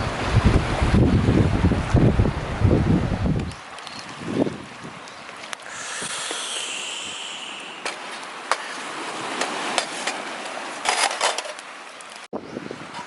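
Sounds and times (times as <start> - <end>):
steady hiss: 5.6 - 9.0.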